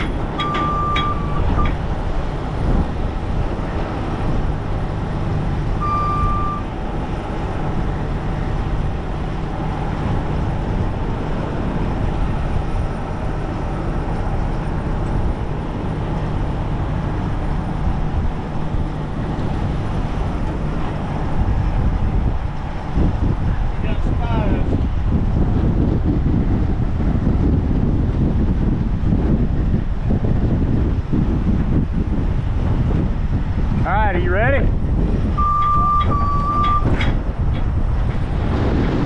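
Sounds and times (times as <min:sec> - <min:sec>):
diesel truck engine running: 0:00.0 - 0:34.1, 0:34.7 - 0:39.0
wind buffeting microphone: 0:00.0 - 0:39.0
short high-pitched beep: 0:00.4 - 0:01.7, 0:05.8 - 0:06.7, 0:35.4 - 0:37.0.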